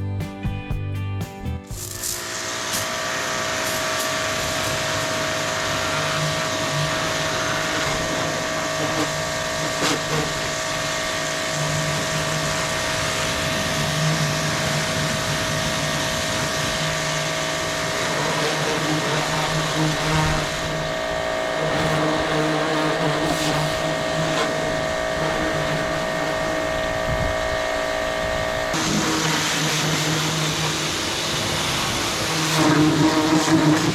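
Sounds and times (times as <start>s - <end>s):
water spray hissing: 1.7s - 20.9s, 28.8s - 33.9s
pressure washer motor hum: 1.7s - 33.9s.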